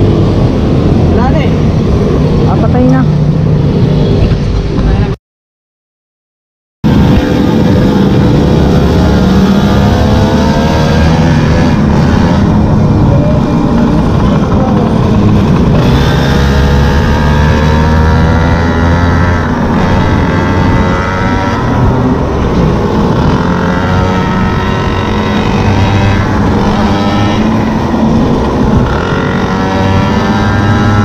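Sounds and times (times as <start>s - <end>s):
wind rumble on microphone: 6.9s - 31.0s.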